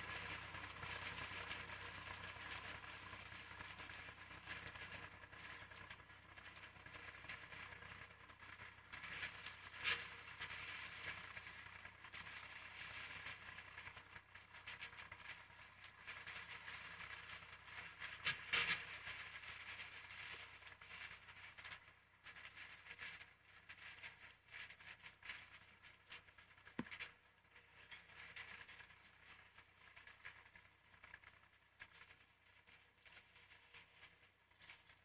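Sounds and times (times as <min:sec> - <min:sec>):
forage harvester rattling clatter: 0:00.0 - 0:35.0.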